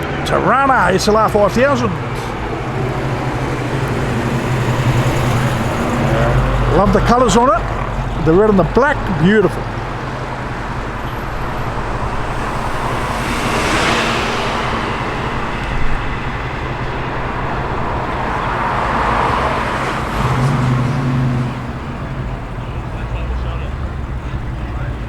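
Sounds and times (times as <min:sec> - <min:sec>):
cars driving past: 0:00.0 - 0:25.0.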